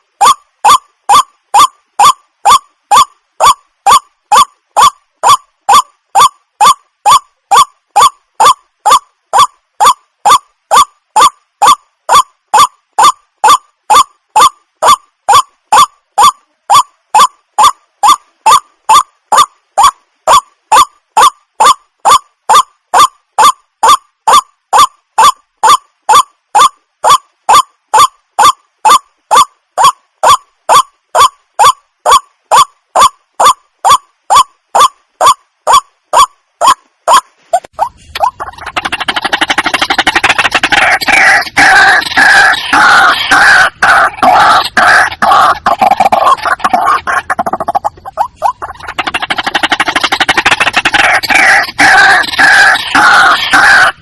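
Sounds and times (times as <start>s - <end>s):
water hen croaking: 34.8s - 54.0s.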